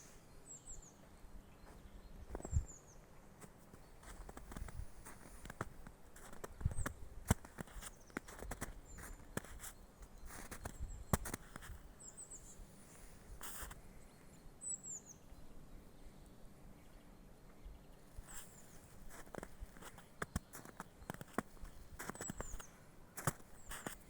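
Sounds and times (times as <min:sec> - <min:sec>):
footsteps crunching: 0:03.4 - 0:06.6, 0:07.3 - 0:11.8, 0:13.4 - 0:13.8, 0:18.2 - 0:24.0
rustle: 0:07.3 - 0:16.0.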